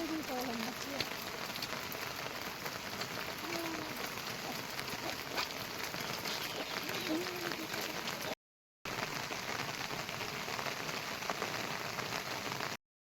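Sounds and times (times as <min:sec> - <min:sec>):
person's voice: 0:00.0 - 0:01.1, 0:03.4 - 0:05.3, 0:06.3 - 0:08.4
heavy rain falling: 0:00.0 - 0:12.8
raindrops ticking: 0:00.0 - 0:12.8.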